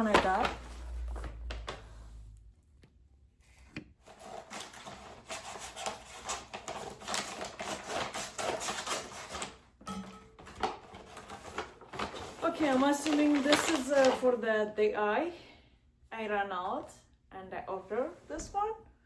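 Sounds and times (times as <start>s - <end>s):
package being opened by hand: 4.0s - 9.6s, 10.4s - 14.2s.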